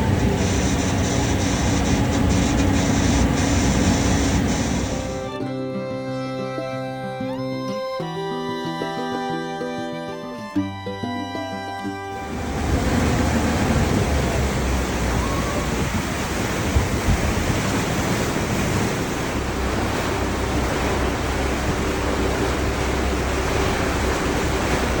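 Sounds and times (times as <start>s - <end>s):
wind buffeting microphone: 0.0s - 5.3s, 12.2s - 25.0s
low steady hum: 0.0s - 5.4s, 12.2s - 25.0s
water rushing: 0.0s - 5.4s, 12.2s - 25.0s.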